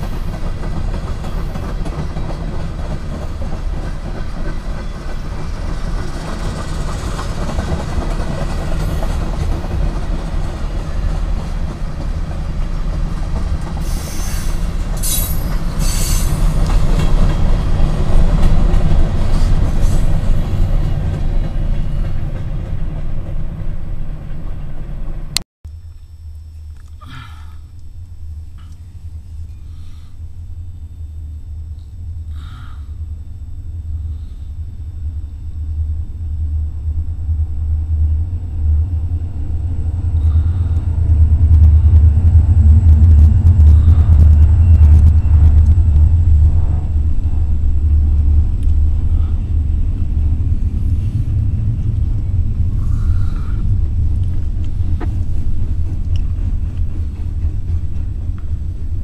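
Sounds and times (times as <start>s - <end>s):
diesel locomotives rumbling: 0.0s - 59.0s.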